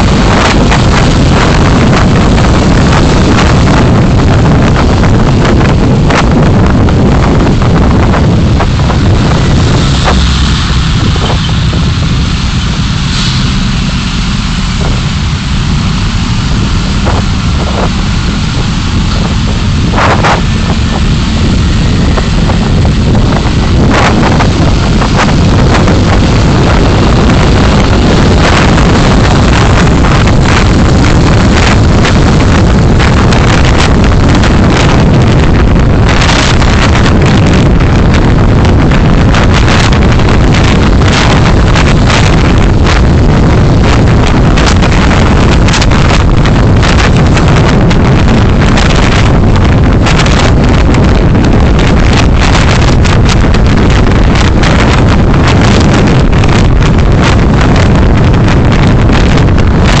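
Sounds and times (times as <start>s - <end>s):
road and wind noise: 0.0s - 60.0s.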